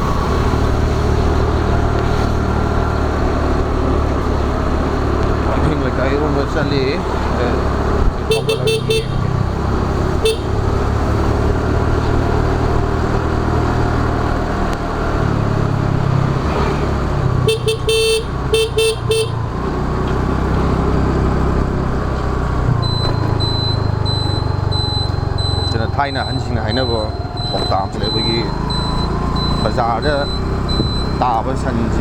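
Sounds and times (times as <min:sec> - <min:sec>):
scooter engine drone: 0:00.0 - 0:32.0
vehicle horn honking: 0:08.2 - 0:09.5, 0:10.1 - 0:10.7, 0:17.4 - 0:19.5.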